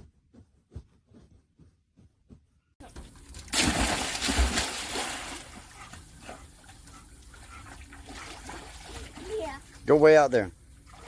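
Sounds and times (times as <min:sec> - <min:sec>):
water sloshing and dripping: 0:02.8 - 0:11.0
water splashing: 0:02.8 - 0:11.0.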